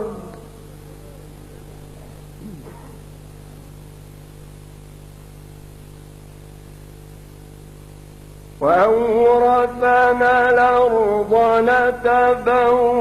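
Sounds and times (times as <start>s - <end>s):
electrical mains hum: 0.0s - 13.0s
faint voice: 0.9s - 3.0s.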